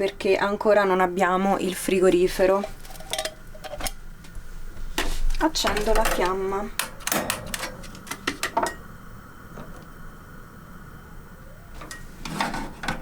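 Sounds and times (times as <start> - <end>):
gas burner hissing: 0.0 - 13.0
stove igniter clicks: 5.4 - 8.9.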